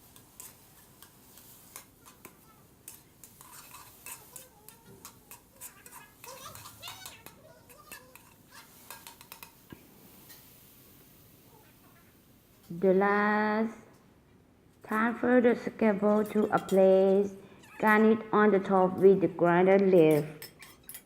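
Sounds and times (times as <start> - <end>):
utensil scraping frying pan: 0.0 - 11.1.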